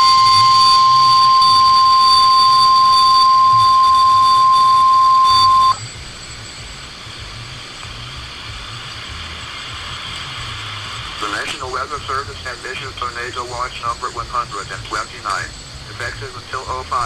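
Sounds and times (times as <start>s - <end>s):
loud steady alarm tone: 0.0s - 7.7s
quiet radio hiss: 0.0s - 17.0s.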